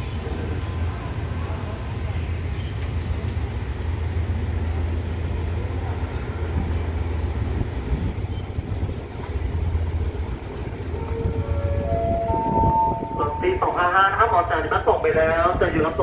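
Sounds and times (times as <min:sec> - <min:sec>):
diesel engine drone: 0:09.5 - 0:16.0.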